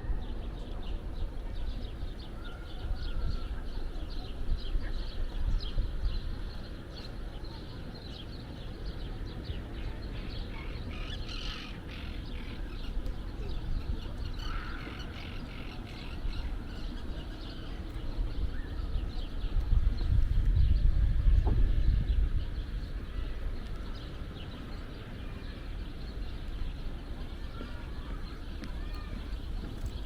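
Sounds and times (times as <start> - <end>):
birds chirping: 0.2 - 30.0
steady low rumble: 8.4 - 30.0.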